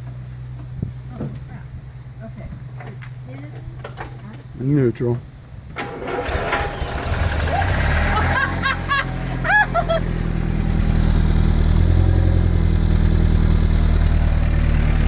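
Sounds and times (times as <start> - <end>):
petrol engine starting and idling: 5.7 - 15.0.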